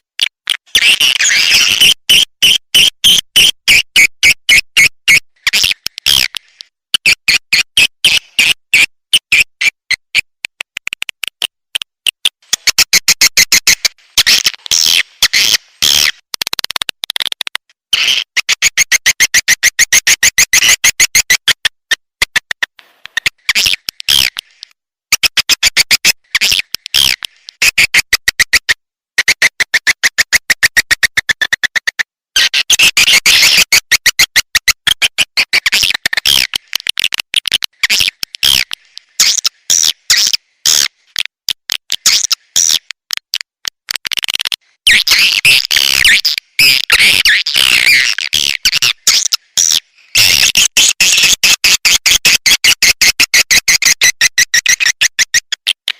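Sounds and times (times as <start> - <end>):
high chirping bird clicks: 22.2 - 28.6.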